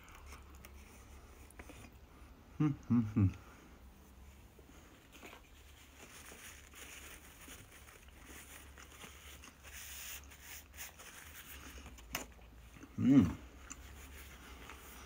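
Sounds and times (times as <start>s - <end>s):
paper napkin rustling: 5.1s - 12.0s
man chewing: 10.7s - 15.0s.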